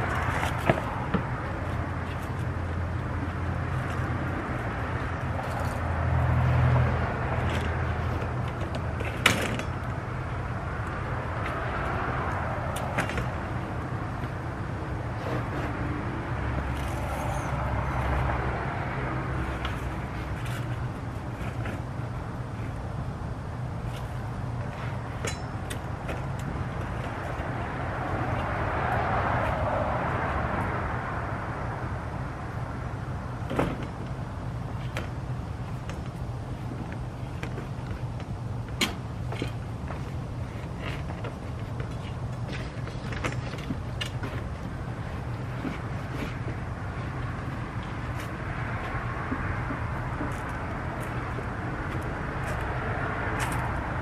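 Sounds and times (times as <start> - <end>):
vehicle passing: 0.0 - 8.4, 9.8 - 21.5, 26.7 - 33.4, 44.2 - 54.0.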